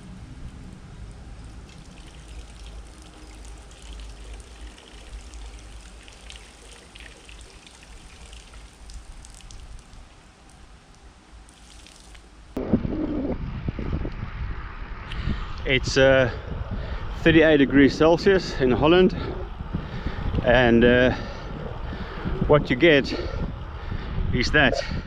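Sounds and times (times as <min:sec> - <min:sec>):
wind rumble on microphone: 0:12.5 - 0:25.0.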